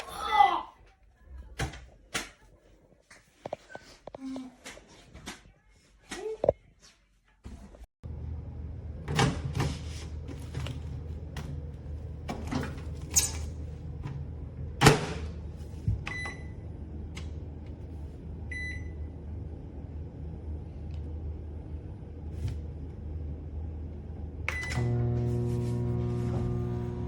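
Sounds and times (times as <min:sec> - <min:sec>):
microwave oven humming: 0:08.0 - 0:27.0.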